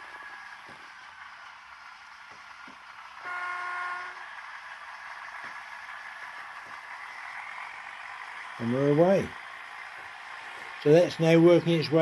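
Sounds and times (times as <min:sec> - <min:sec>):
model locomotive engine running: 0:00.0 - 0:12.0
model locomotive horn blast: 0:03.2 - 0:04.4.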